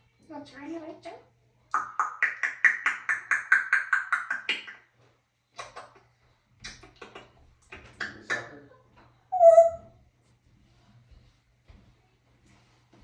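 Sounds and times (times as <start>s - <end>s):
parrot making short repeated calls: 9.4s - 9.9s.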